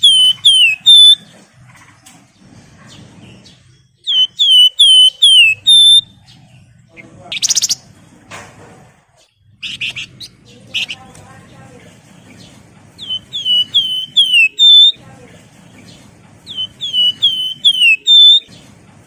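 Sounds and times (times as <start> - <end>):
bird singing clear whistles: 0.0 - 1.3, 4.0 - 6.2, 7.3 - 7.8, 13.0 - 15.0, 16.4 - 18.6.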